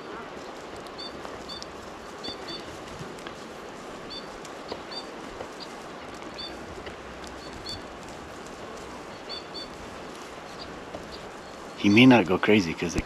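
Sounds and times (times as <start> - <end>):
small bird chirping: 0.0 - 2.8, 4.1 - 6.6, 7.2 - 7.9, 9.0 - 9.8, 10.4 - 12.2
faint ticks: 0.0 - 11.8
outdoor background hiss: 0.0 - 13.0.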